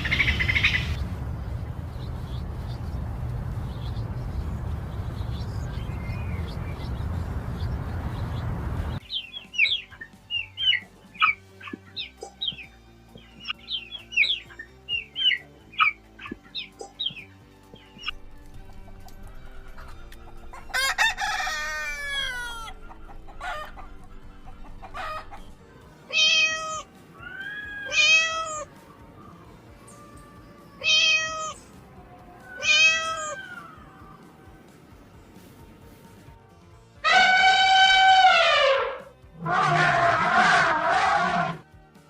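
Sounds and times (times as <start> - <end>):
bird calls: 0.0 - 1.0, 1.8 - 25.6.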